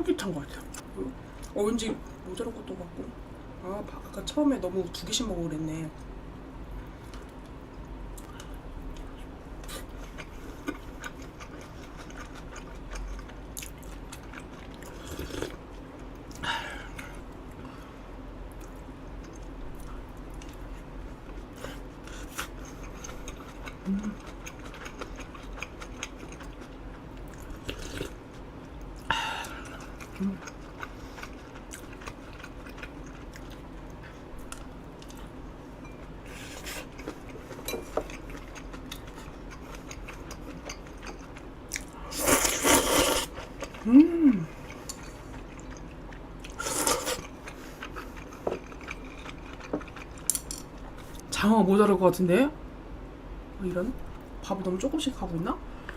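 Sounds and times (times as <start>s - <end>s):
chewing food: 7.0s - 17.2s, 18.5s - 43.9s, 44.5s - 51.2s.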